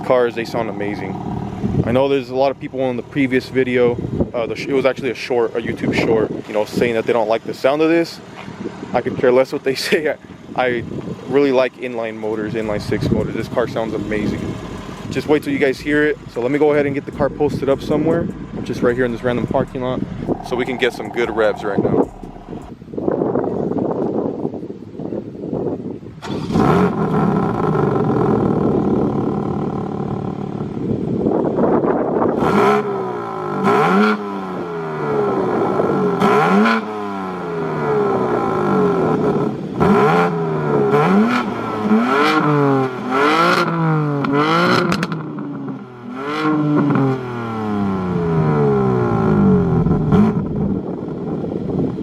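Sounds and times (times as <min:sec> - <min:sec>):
car engine revving: 0:00.0 - 0:04.3, 0:12.3 - 0:22.8, 0:26.2 - 0:31.0, 0:32.3 - 0:51.0
exhaust cracks: 0:00.0 - 0:05.0, 0:09.7 - 0:22.8, 0:26.2 - 0:31.5, 0:37.6 - 0:51.4.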